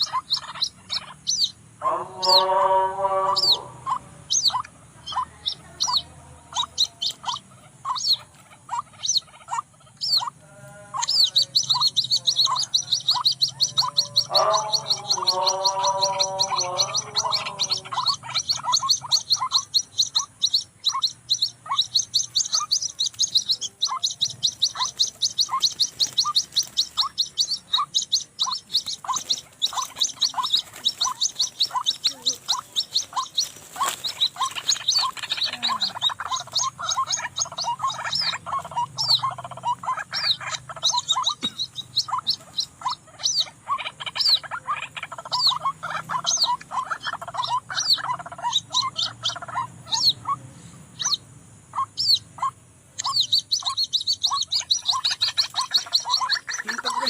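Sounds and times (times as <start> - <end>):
high chirping notes: 0.0 - 57.0.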